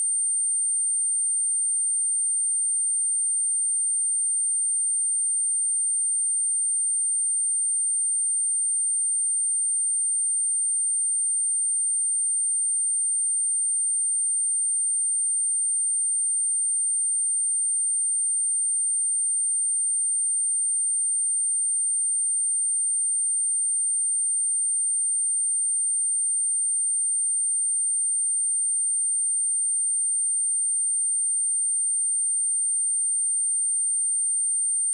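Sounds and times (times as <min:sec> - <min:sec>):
high-pitched sine test tone: 0:28.3 - 0:34.9.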